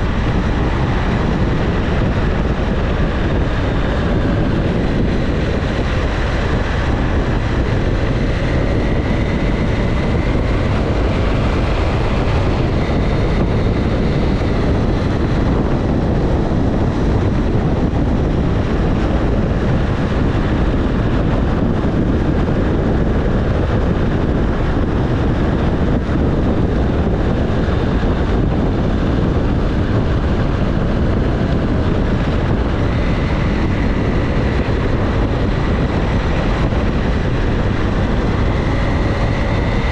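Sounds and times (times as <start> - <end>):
motorcycle engine running: 0.0 - 39.9
wind rushing on microphone: 0.0 - 39.9.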